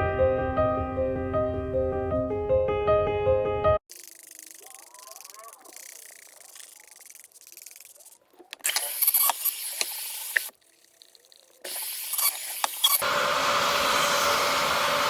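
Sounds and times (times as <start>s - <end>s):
water spraying: 3.9s - 15.0s.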